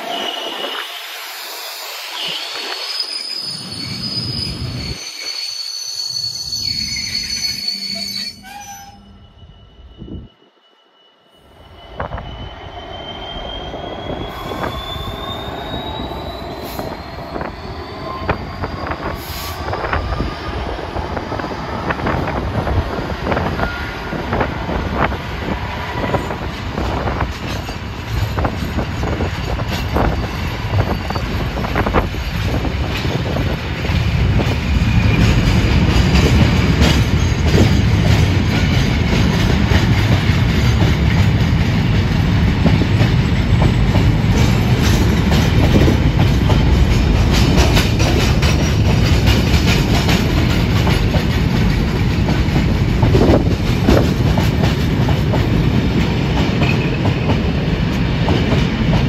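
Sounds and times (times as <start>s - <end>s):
high wheel squeal: 0.0s - 22.2s, 30.0s - 32.6s
low train rumble: 11.4s - 59.0s
wheels clicking on rail joints: 26.1s - 59.0s.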